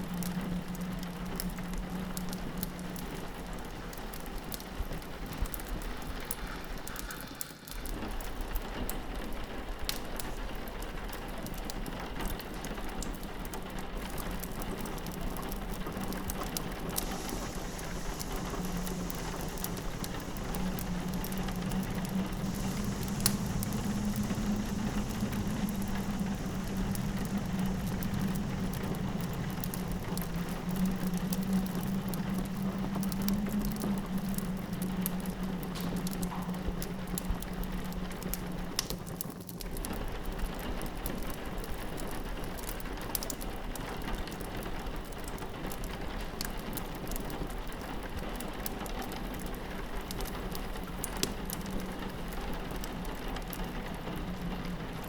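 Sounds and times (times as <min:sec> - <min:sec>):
fireplace crackling: 0:00.0 - 0:55.0
rain pattering on window: 0:00.0 - 0:55.0
low wind drone: 0:14.0 - 0:39.2.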